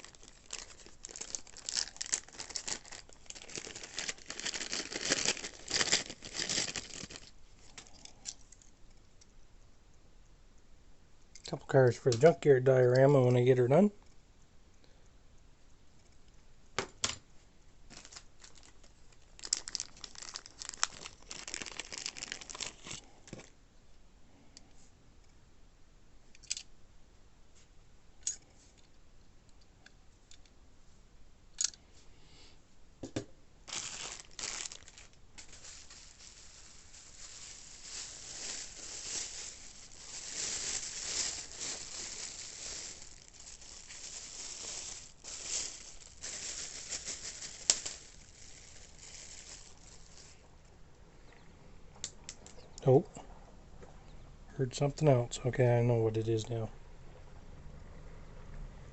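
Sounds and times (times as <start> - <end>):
packing material crinkling: 0.0 - 8.6, 17.9 - 23.5, 33.7 - 50.5.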